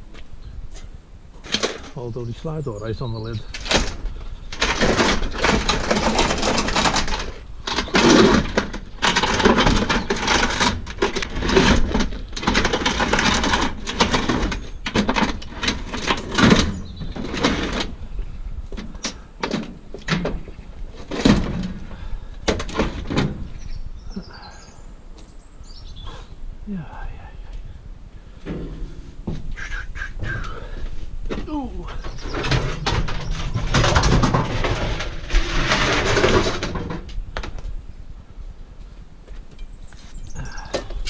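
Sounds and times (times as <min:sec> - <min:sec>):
scrap metal clanking and scraping: 0:00.7 - 0:02.2, 0:03.4 - 0:18.0, 0:18.8 - 0:23.6, 0:30.2 - 0:37.2.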